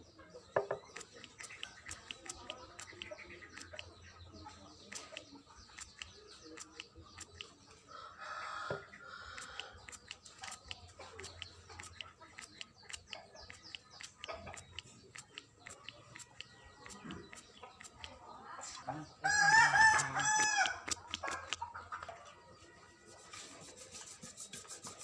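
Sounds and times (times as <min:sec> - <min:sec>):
birds calling: 0:00.0 - 0:25.0
sharp clicks: 0:00.7 - 0:07.6, 0:09.4 - 0:18.9, 0:19.5 - 0:22.1.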